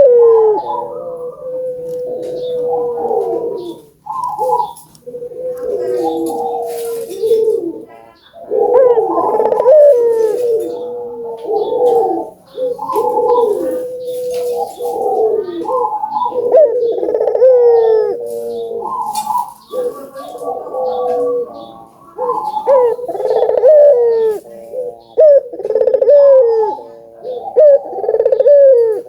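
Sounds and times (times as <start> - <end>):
doves cooing: 0.0 - 29.0.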